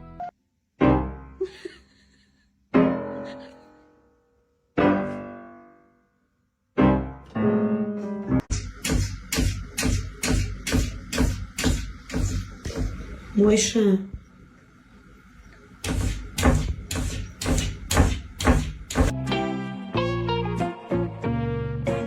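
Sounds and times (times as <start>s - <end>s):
piano chords ringing: 0.0s - 1.4s, 4.0s - 8.6s.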